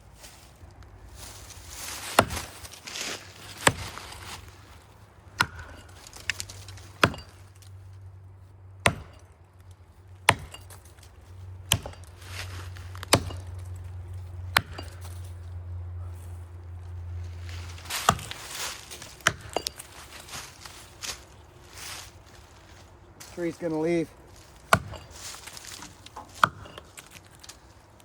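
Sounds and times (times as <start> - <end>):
low steady hum: 0.0 - 28.0
axe chopping into tree trunk: 1.9 - 4.4, 5.4 - 7.4, 8.8 - 9.3, 10.2 - 11.0, 11.7 - 13.7, 14.5 - 15.2, 17.8 - 21.2, 24.6 - 27.2.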